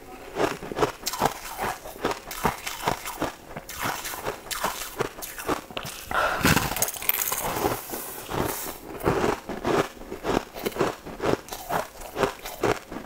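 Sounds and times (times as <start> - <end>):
crunchy snack chewing: 0.3 - 13.0.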